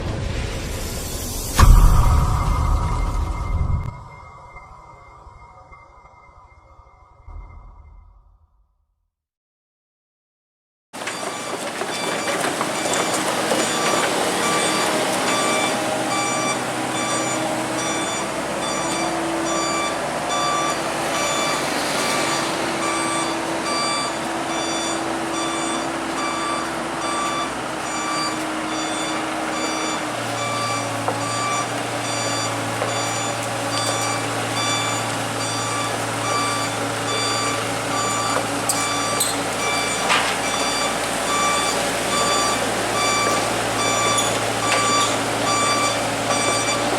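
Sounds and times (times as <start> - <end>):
excavator diesel engine running: 11.0 - 46.9
travel alarm beeping: 11.1 - 46.9.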